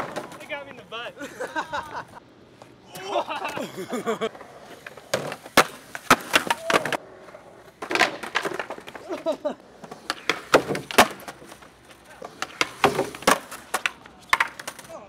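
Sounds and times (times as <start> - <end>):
skateboard pops and clacks: 0.0 - 0.5, 4.4 - 7.0, 7.7 - 15.0
voices calling out: 0.0 - 4.9.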